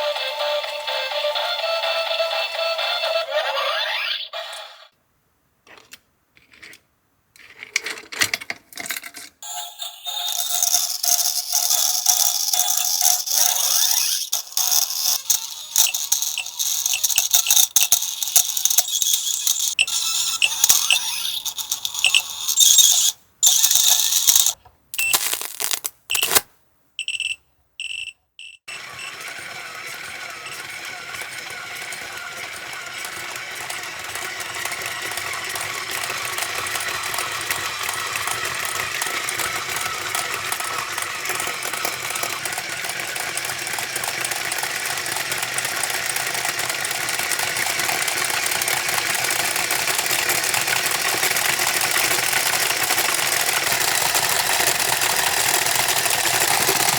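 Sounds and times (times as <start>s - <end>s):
toy motor and gears rattling: 10.0s - 26.4s, 28.6s - 56.9s.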